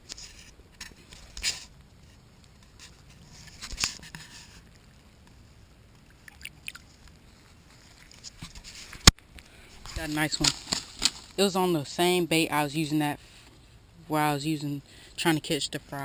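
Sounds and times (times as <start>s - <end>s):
rustling and scraping handling noises: 0.0s - 6.1s, 6.8s - 12.0s.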